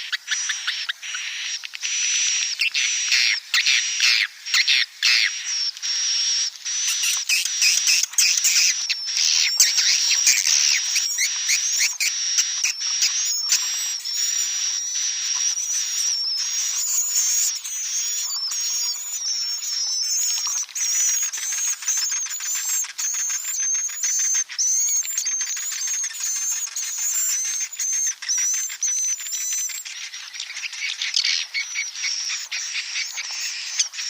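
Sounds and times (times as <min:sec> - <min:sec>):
thin whistle-like tone: 0:05.4 - 0:30.1
swiftlets twittering: 0:05.4 - 0:34.0.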